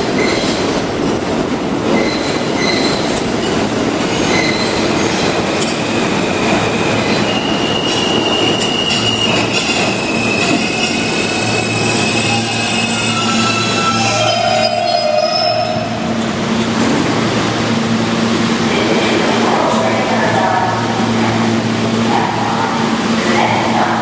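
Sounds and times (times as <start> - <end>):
wheels rumbling on rail: 0.0 - 24.0
high-pitched wheel squeal: 7.3 - 15.9.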